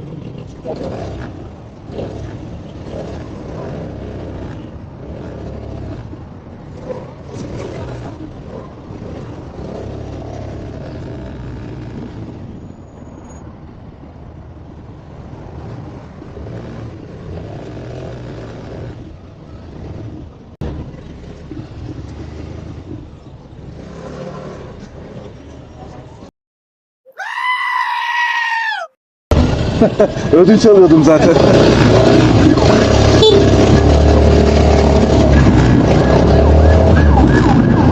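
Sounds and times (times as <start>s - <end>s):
motorcycle engine running: 29.3s - 35.9s.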